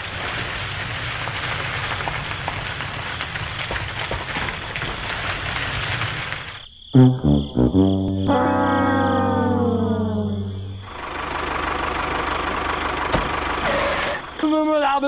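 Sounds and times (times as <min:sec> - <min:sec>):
sand and rocks scraping: 0:00.0 - 0:06.6
brassy music note: 0:07.0 - 0:10.9.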